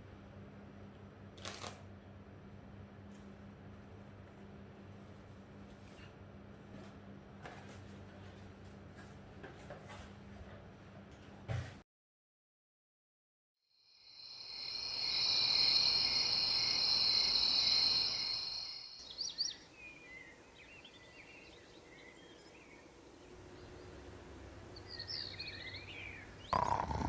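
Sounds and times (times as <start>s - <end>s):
insect chorus buzzing: 13.8s - 19.7s
bird chirps: 19.0s - 22.9s.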